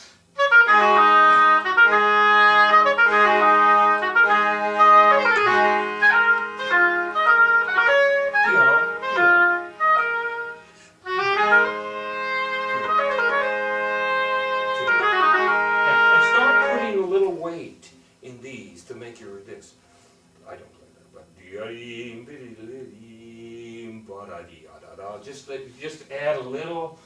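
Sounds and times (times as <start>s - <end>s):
oboe melody: 0.3s - 17.6s.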